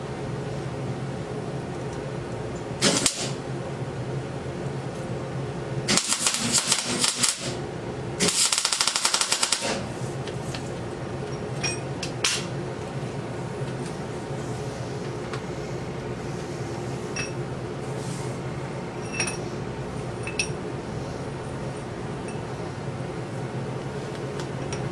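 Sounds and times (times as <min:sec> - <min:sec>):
steady hum: 0:00.0 - 0:24.9
welding arc crackling: 0:02.8 - 0:03.4, 0:05.9 - 0:07.6, 0:08.2 - 0:09.8.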